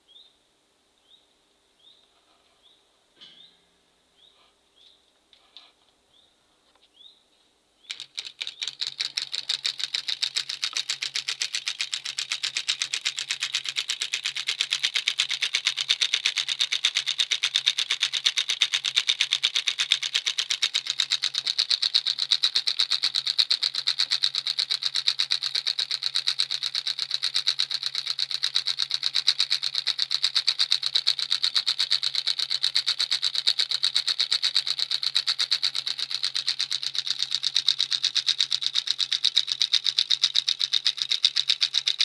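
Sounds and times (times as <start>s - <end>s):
faint low hum: 0.0s - 13.4s
electromagnet engine clicking rapidly: 7.8s - 42.0s.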